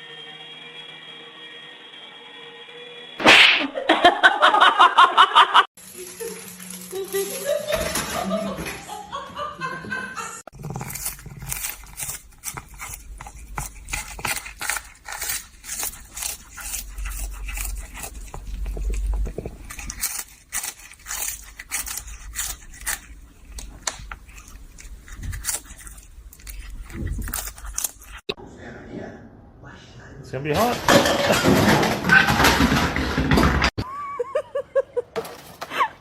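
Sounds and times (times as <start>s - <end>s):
rapid scraping and crunching: 10.5s - 28.3s.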